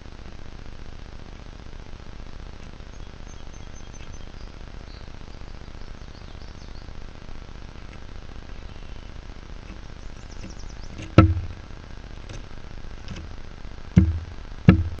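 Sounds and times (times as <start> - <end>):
woodpecker knocks: 9.6 - 13.4, 14.0 - 15.0.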